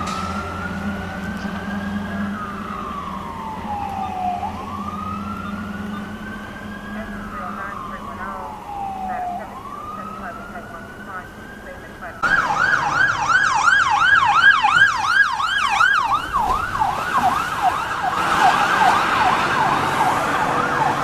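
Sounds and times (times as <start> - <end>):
electronic siren yelp: 0.0 - 21.0
siren high wail: 0.0 - 21.0.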